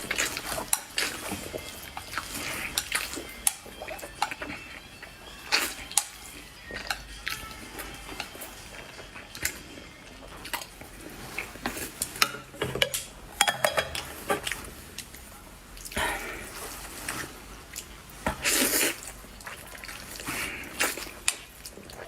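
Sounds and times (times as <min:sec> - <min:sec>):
utensils clicking against bowl: 0:05.5 - 0:09.6.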